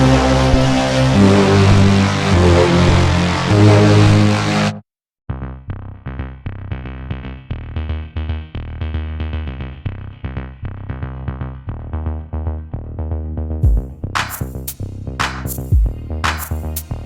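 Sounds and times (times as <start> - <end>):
electronic music: 0.0 - 4.8, 13.6 - 17.0.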